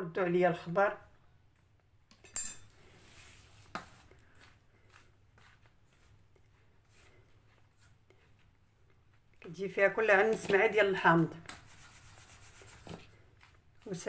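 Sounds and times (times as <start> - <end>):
dish clinking: 2.3 - 2.7
soft rustle: 2.8 - 14.0.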